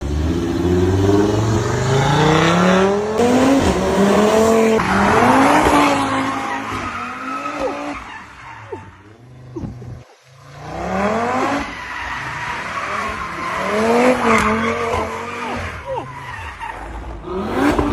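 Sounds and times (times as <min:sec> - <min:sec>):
car engine accelerating hard: 0:00.0 - 0:07.8.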